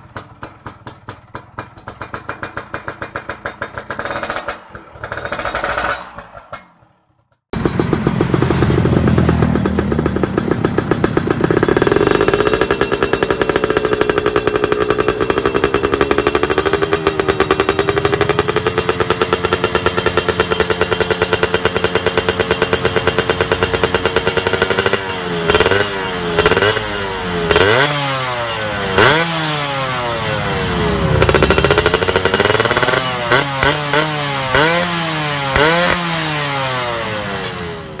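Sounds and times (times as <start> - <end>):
motorcycle engine fast idle: 0.0 - 6.5, 7.1 - 25.8
engine revving in throttle blips: 7.9 - 38.0.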